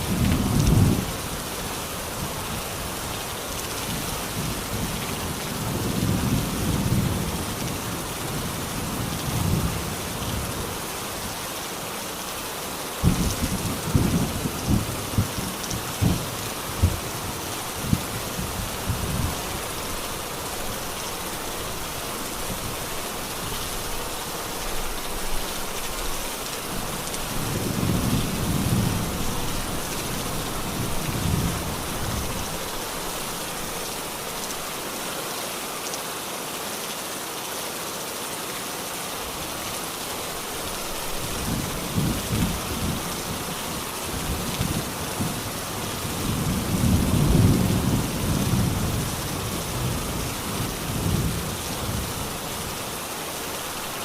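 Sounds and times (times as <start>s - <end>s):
heavy rain: 0.0s - 54.0s
thunder rumbling: 13.0s - 19.5s, 41.3s - 52.4s.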